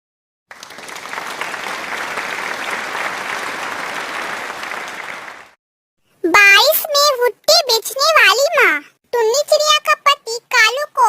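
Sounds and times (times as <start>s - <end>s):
many hands clapping: 0.5s - 5.6s.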